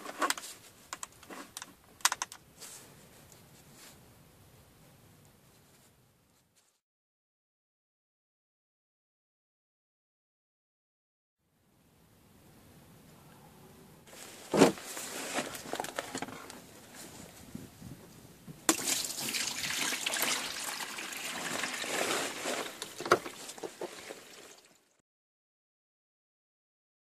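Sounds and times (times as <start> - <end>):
liquid pouring and splashing: 18.7 - 25.0.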